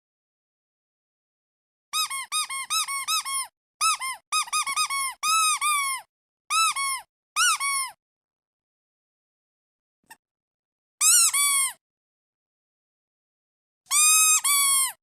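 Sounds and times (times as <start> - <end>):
squeaky duck toy squeaking: 2.0 - 8.0, 11.0 - 11.8, 13.9 - 15.0.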